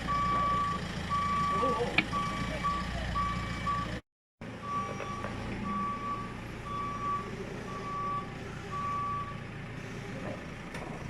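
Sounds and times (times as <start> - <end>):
reversing alarm beeping: 0.0 - 4.0, 4.6 - 9.4
diesel engine running: 0.0 - 11.0.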